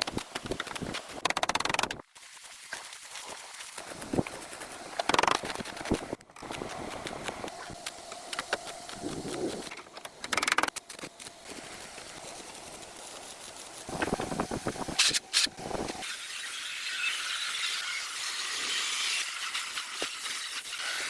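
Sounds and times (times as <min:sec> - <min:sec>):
clicking and scraping: 0:03.8 - 0:16.0.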